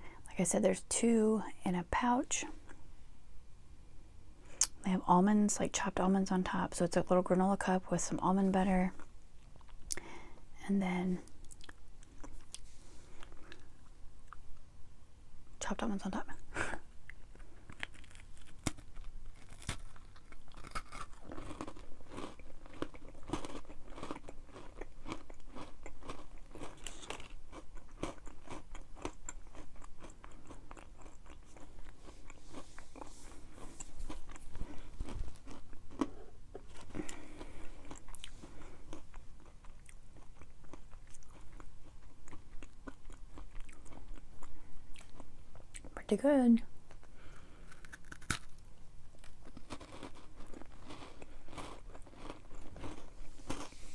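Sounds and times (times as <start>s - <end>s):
crunchy chewing: 11.2s - 14.6s, 16.5s - 45.9s, 46.9s - 53.9s.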